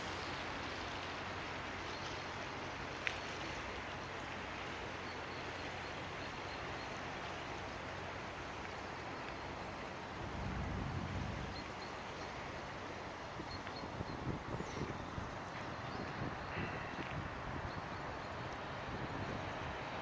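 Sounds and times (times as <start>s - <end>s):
traffic noise: 5.6s - 20.0s
low engine hum: 7.5s - 13.7s.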